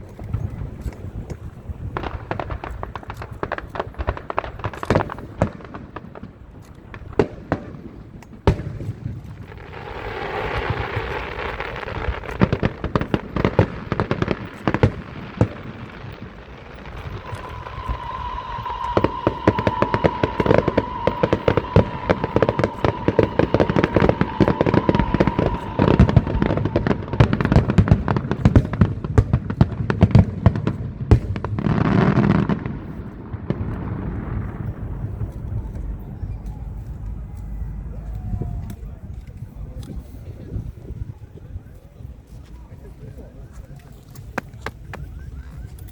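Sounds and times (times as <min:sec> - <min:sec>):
fireworks banging and crackling: 0:00.0 - 0:45.9
fireworks hissing: 0:01.0 - 0:37.1
high whistle: 0:15.0 - 0:28.4.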